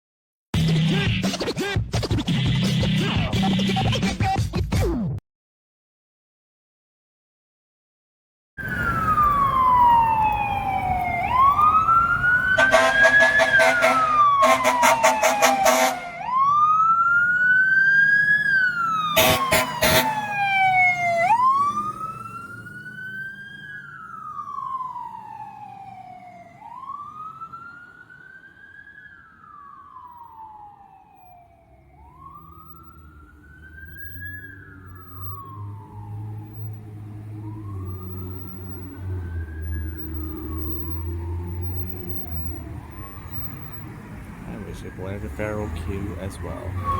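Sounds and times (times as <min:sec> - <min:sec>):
fire truck siren wailing: 0:08.6 - 0:46.9
air horn blasts: 0:12.6 - 0:16.2, 0:19.2 - 0:20.2.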